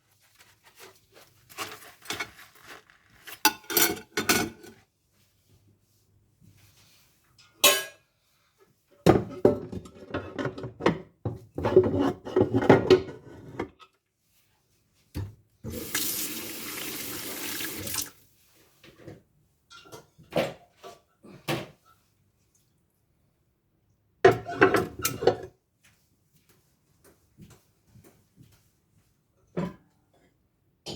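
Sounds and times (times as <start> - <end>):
tap running: 15.7 - 18.1.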